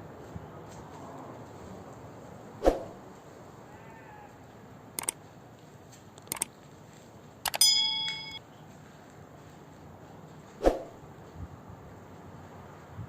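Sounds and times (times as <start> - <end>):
sharp clicks: 5.0 - 5.2, 6.1 - 6.6, 7.5 - 8.4
metallic bell ding: 7.5 - 8.4.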